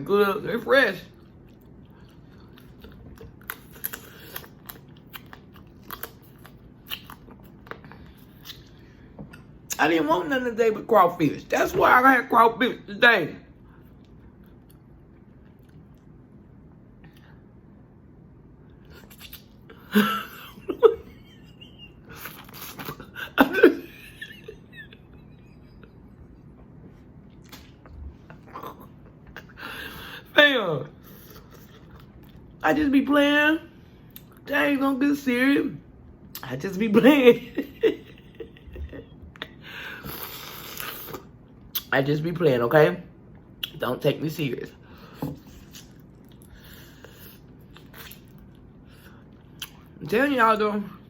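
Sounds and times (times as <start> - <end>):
person chewing: 1.1 - 9.8, 13.7 - 16.2, 18.8 - 19.9, 22.1 - 23.3, 26.3 - 30.1, 31.0 - 32.6, 39.4 - 41.9, 45.0 - 50.0
sucking and slurping while eating: 39.9 - 41.9.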